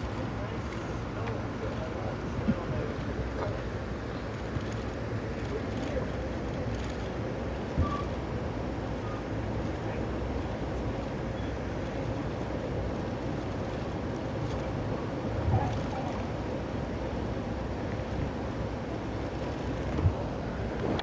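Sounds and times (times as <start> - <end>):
train rumbling: 0.0 - 21.0.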